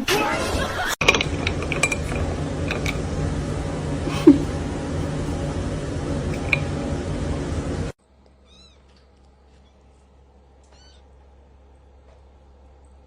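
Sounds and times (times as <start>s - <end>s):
loud steady noise: 1.0s - 8.0s
high-pitched cat meows: 8.4s - 8.9s.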